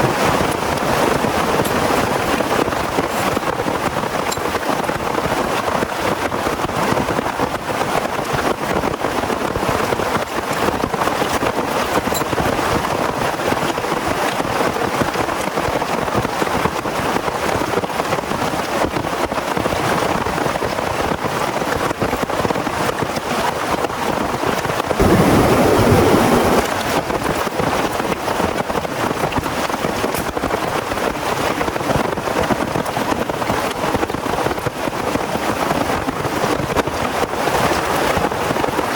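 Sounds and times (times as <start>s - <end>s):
heavy rain falling: 24.8s - 27.5s
low rumble: 25.0s - 26.7s.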